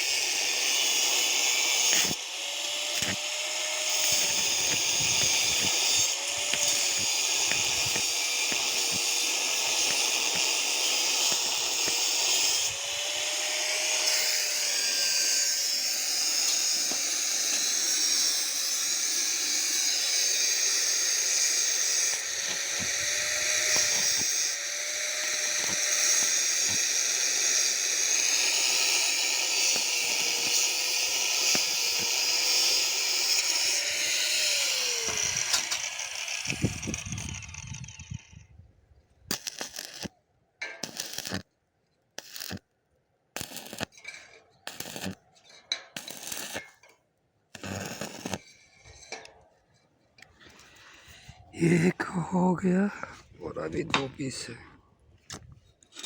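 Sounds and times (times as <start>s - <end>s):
arc welding crackle: 0.1s - 12.8s, 19.7s - 38.2s, 39.3s - 40.1s, 40.8s - 41.4s, 42.2s - 42.6s, 43.4s - 44.0s, 44.6s - 45.2s, 46.0s - 46.8s, 47.6s - 48.4s.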